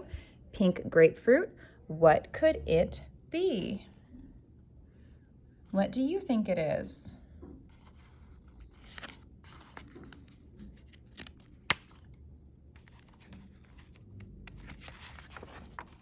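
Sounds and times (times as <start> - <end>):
book pages rustling: 7.7 - 16.0.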